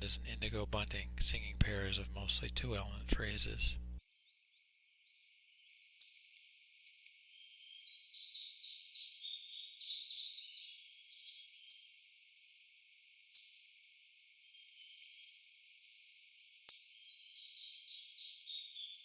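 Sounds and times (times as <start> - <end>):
bunting singing high phrases: 0.0 - 4.0.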